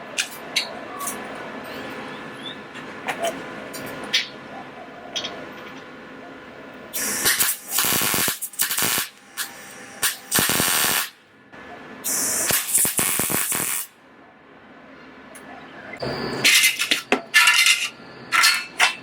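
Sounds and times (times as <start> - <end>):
crackling welding arc: 7.0 - 11.2, 12.0 - 14.0.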